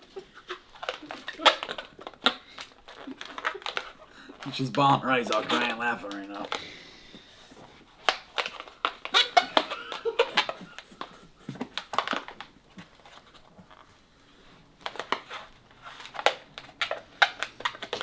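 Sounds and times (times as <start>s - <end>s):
balloon crinkling and rubbing: 0.0s - 18.0s.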